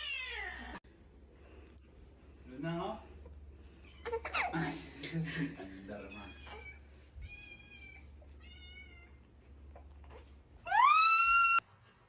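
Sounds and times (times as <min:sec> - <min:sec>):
cat meowing: 0:06.1 - 0:09.2.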